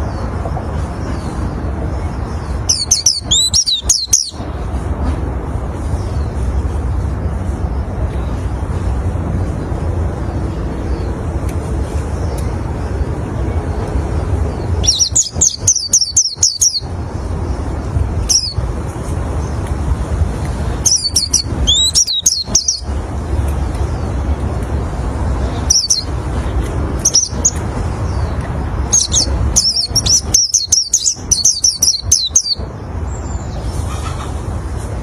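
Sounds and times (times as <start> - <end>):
bird chirping: 0.0 - 4.6, 11.8 - 18.7, 20.7 - 24.3, 25.4 - 34.3
steady low rumble: 0.0 - 35.0.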